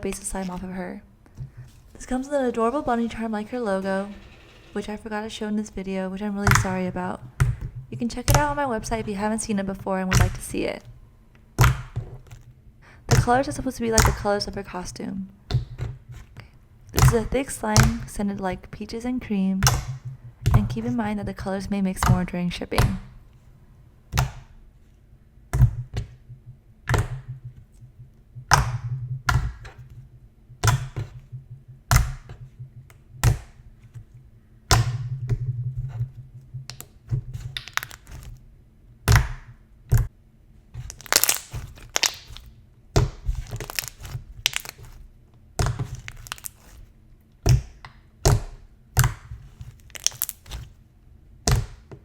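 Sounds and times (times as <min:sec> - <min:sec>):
slime squishing and popping: 0:34.6 - 0:35.8, 0:36.5 - 0:38.4, 0:40.8 - 0:50.8.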